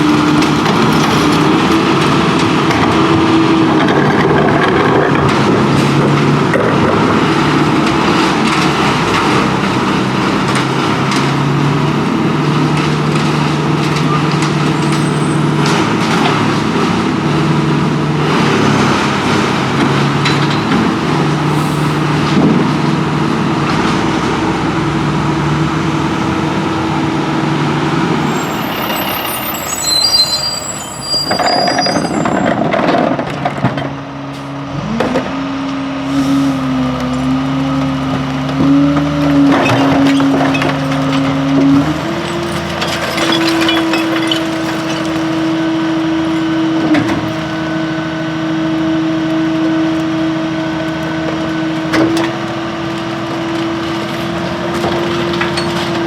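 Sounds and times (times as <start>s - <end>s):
garbage truck engine drone: 0.0s - 56.0s
high squeaks: 28.3s - 32.5s.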